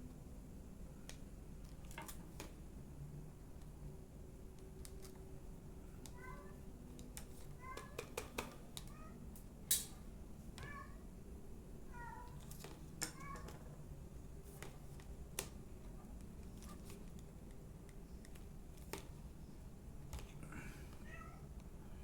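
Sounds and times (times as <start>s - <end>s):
clicks and knocks of handling tools: 9.7s - 10.0s.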